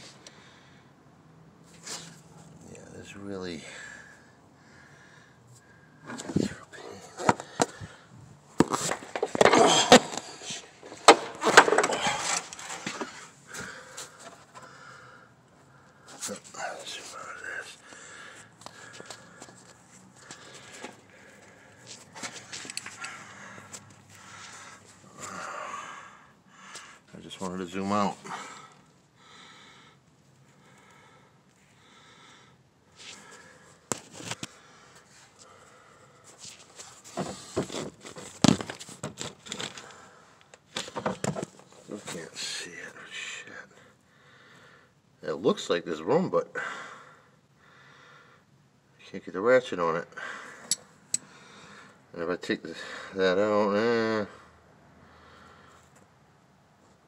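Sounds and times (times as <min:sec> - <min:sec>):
tools clattering against engine parts: 0:08.6 - 0:13.2, 0:22.2 - 0:23.2
rattling and scraping: 0:08.6 - 0:13.3.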